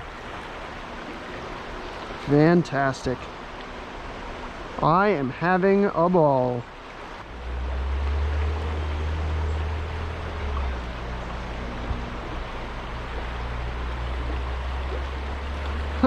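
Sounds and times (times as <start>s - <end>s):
creek water running over stones: 0.0s - 16.0s
low rumble: 7.2s - 16.0s.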